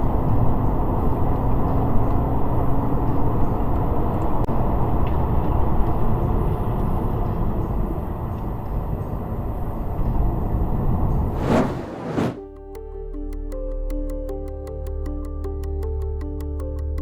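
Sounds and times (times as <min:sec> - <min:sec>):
car road and wind noise: 0:10.6 - 0:12.4.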